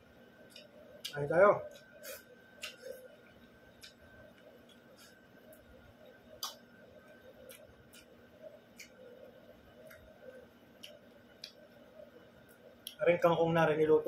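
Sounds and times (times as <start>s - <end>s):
mouth smacks while chewing: 2.6s - 2.9s.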